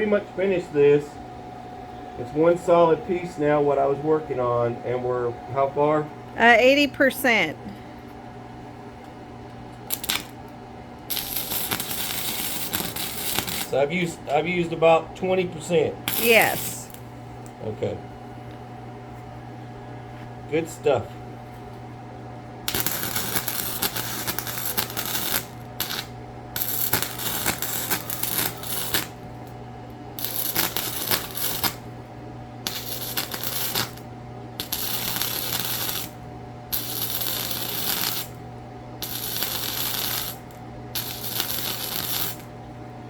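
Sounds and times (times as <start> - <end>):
steady low hum: 0.0 - 43.0
welding arc crackling: 9.8 - 10.5, 11.1 - 14.1, 16.1 - 17.0, 22.6 - 32.0, 32.6 - 38.4, 39.0 - 42.5.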